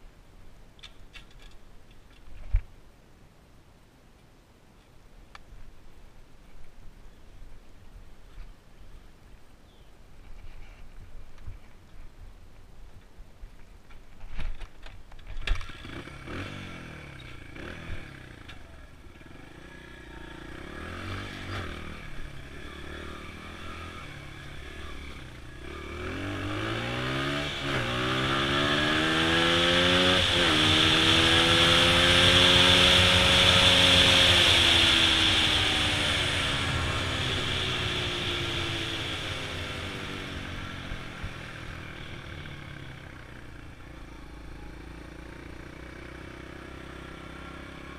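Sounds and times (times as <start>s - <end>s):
dirt bike engine revving: 15.6s - 18.5s, 19.2s - 42.5s.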